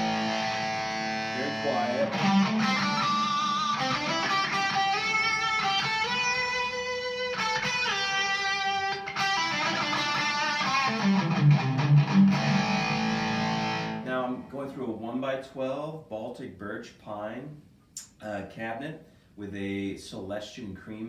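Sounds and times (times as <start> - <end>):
electric guitar chords and notes: 0.0 - 14.5.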